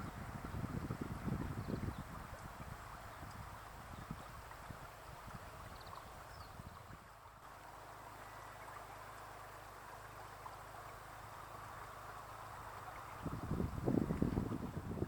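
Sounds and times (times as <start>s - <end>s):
wind buffeting microphone: 0.0s - 7.3s, 12.5s - 15.0s.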